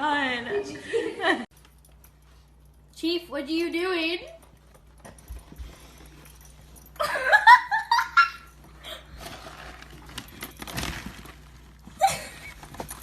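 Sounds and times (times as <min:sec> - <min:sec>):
person laughing: 0:12.0 - 0:12.6.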